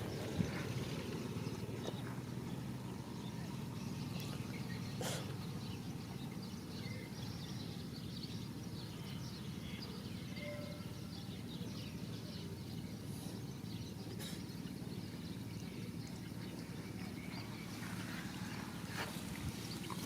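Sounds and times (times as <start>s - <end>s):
steady low rumble: 0.0s - 10.0s
faint bird chirps: 0.0s - 20.0s.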